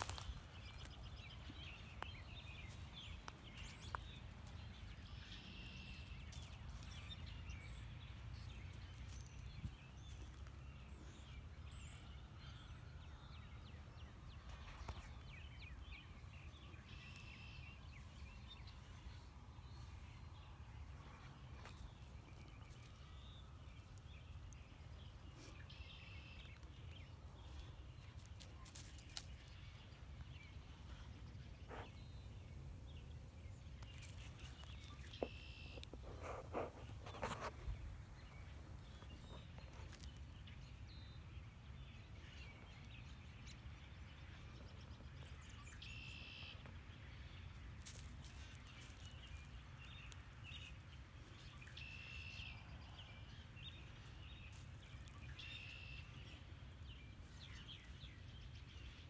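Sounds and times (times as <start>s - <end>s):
footsteps on dry grass: 0.0s - 5.3s, 20.4s - 23.3s, 27.7s - 31.9s, 47.6s - 52.6s.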